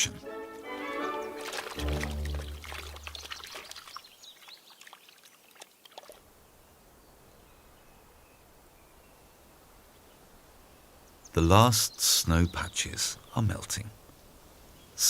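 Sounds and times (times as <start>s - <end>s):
faint outdoor hiss: 0.0s - 15.0s
shallow water splashing: 0.6s - 6.3s.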